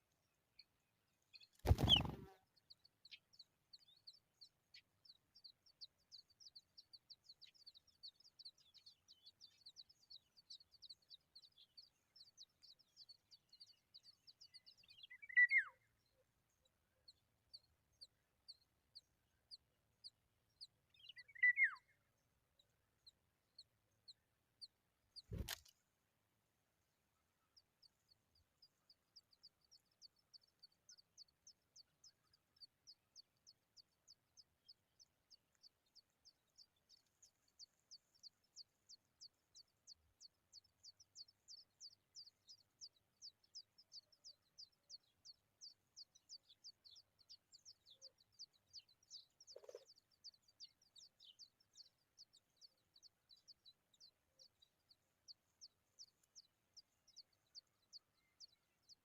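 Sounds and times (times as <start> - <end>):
nestlings begging cheeps: 1.7 - 2.2.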